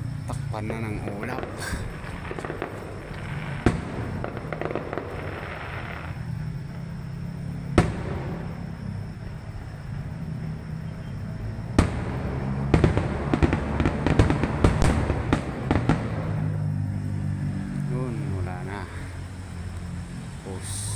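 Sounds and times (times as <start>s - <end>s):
crackling fireworks: 0.0s - 20.9s
fireworks bangs: 0.4s - 16.9s.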